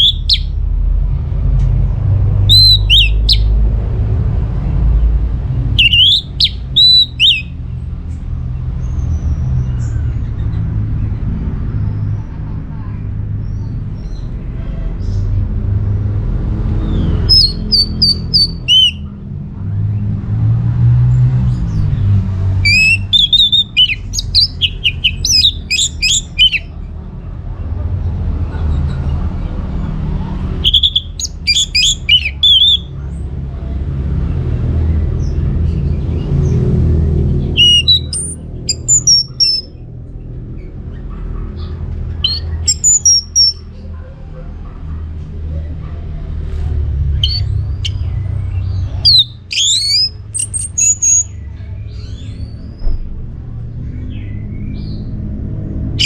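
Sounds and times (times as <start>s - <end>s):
thrush singing whistled phrases: 0.0s - 0.5s, 2.5s - 3.5s, 5.8s - 7.5s, 17.3s - 19.1s, 22.6s - 26.7s, 30.6s - 32.9s, 37.5s - 39.7s, 42.2s - 43.6s, 47.2s - 48.1s, 48.9s - 51.4s.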